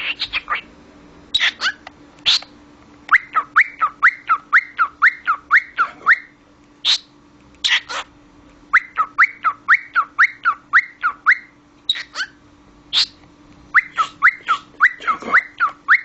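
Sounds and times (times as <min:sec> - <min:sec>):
harsh bird calls: 0:00.0 - 0:00.7, 0:01.3 - 0:02.5, 0:03.1 - 0:08.1, 0:08.7 - 0:16.0
cockatiel whistling chirps: 0:01.4 - 0:02.5, 0:03.1 - 0:07.1, 0:08.7 - 0:16.0.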